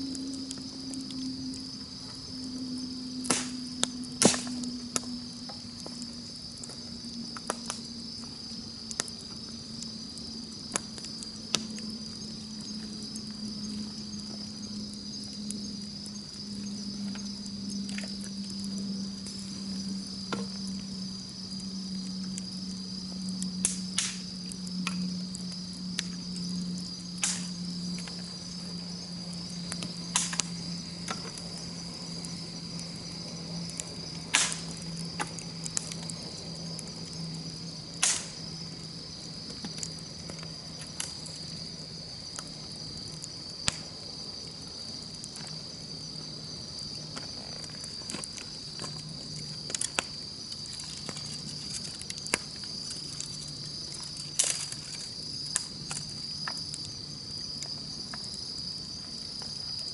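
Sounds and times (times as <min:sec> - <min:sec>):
campfire crackling and popping: 0:00.0 - 0:59.9
insects chirring: 0:00.0 - 0:59.9.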